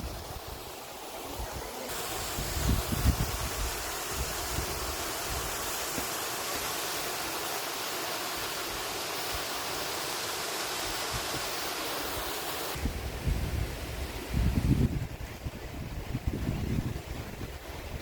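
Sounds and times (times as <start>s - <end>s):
water cascading over rocks: 0.0s - 12.8s.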